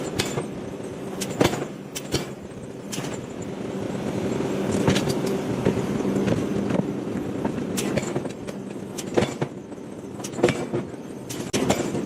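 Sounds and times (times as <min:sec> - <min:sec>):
sharp metallic clanks: 0:00.0 - 0:00.6, 0:01.2 - 0:03.5, 0:07.8 - 0:12.0
forging machinery humming: 0:00.0 - 0:12.0.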